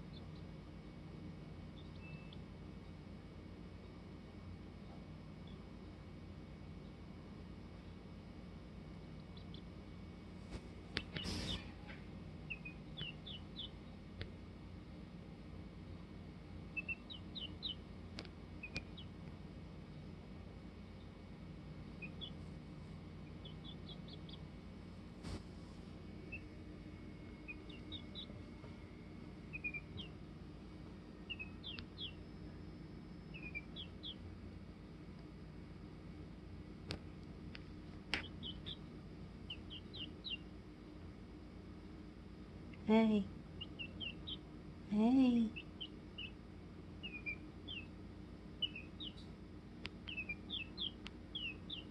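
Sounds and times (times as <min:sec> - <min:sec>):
bird chirping: 0:00.0 - 0:00.5, 0:01.7 - 0:02.5, 0:09.2 - 0:09.8, 0:11.0 - 0:14.1, 0:16.7 - 0:17.9, 0:18.6 - 0:19.2, 0:20.8 - 0:21.2, 0:21.9 - 0:22.4, 0:23.2 - 0:24.6, 0:26.2 - 0:30.2, 0:31.2 - 0:32.3, 0:33.3 - 0:34.3, 0:38.2 - 0:40.6, 0:43.6 - 0:44.6, 0:45.3 - 0:46.4, 0:47.0 - 0:49.3, 0:50.0 - 0:51.9
chicken peeping: 0:00.0 - 0:00.6, 0:01.6 - 0:03.0, 0:09.1 - 0:09.9, 0:10.5 - 0:14.3, 0:16.6 - 0:19.4, 0:20.8 - 0:25.4, 0:26.2 - 0:30.3, 0:31.1 - 0:32.6, 0:33.2 - 0:34.3, 0:36.9 - 0:40.6, 0:43.6 - 0:44.6, 0:45.2 - 0:51.9
faint low hum: 0:00.0 - 0:51.9.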